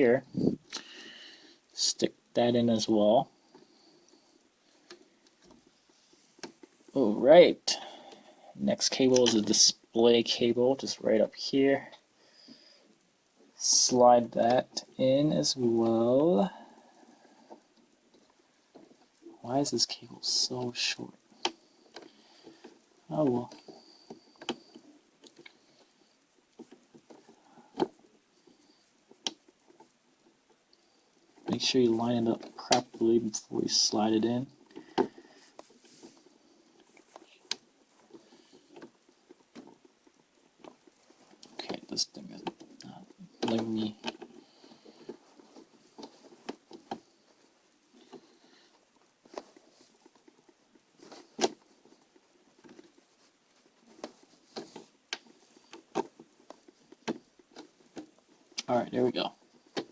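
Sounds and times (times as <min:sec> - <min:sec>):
plastic parts clicking and tapping: 0:34.6 - 0:58.7, 0:59.4 - 0:59.9.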